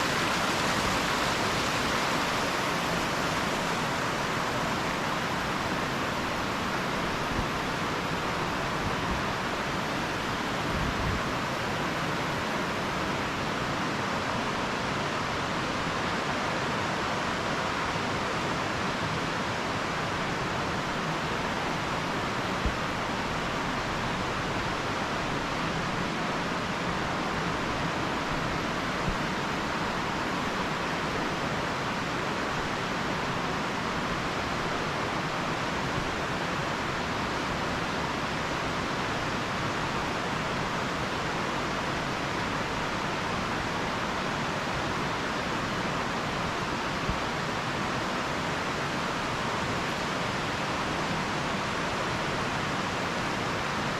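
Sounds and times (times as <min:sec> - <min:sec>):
steady rushing noise: 0:00.0 - 0:13.4.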